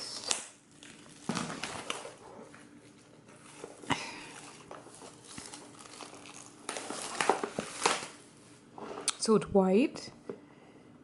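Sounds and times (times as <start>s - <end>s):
packaging rustling and clicking: 0.3s - 2.2s, 4.4s - 8.2s.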